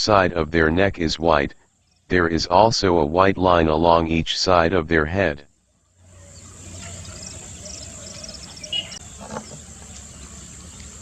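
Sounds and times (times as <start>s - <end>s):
insect calls: 0.0s - 4.1s, 5.4s - 11.0s
background hiss: 0.0s - 11.0s
faint high bird chirps: 5.9s - 11.0s.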